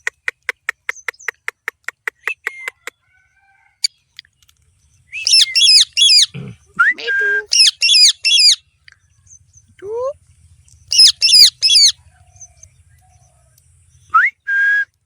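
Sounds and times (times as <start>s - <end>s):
parrot chirping: 5.1s - 6.3s, 6.9s - 8.6s, 10.9s - 12.0s
parrot whistle: 5.2s - 6.3s
parrot squawking harshly: 5.3s - 6.3s, 7.5s - 8.6s, 10.9s - 11.9s.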